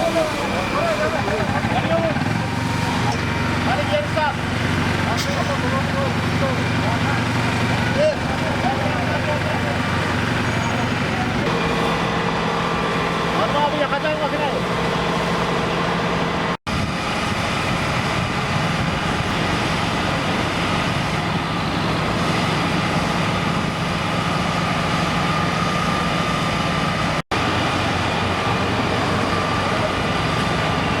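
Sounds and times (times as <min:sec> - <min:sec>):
large engine running: 0:00.0 - 0:31.0.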